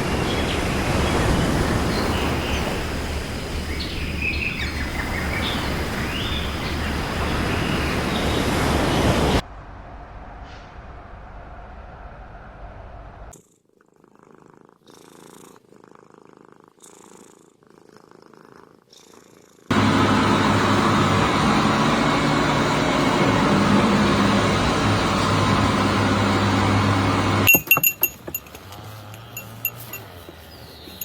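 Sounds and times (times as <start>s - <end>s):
loud purr-like rumble: 9.1s - 27.1s
cat purring: 13.3s - 19.7s
bright clinks: 27.5s - 31.0s.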